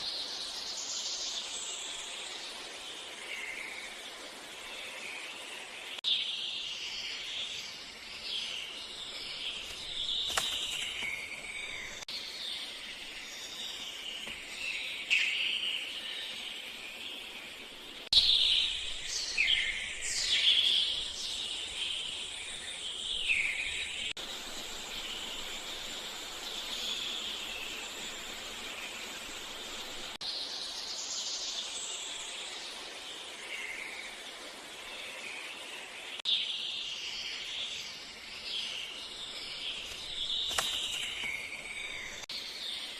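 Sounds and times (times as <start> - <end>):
small birds chirping: 0.0 - 42.9
river water flowing: 24.2 - 36.2.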